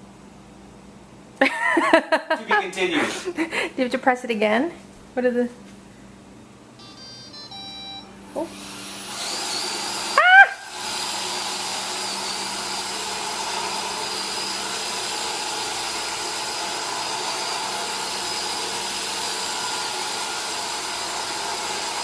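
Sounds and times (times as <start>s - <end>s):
robot vacuum whirring: 8.5s - 22.0s.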